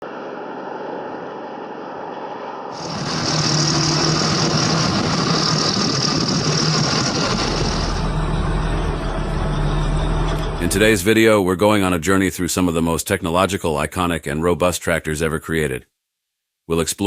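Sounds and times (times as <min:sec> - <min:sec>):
loud engine hum with hissing: 0:02.7 - 0:11.0
diesel engines running: 0:02.8 - 0:11.2.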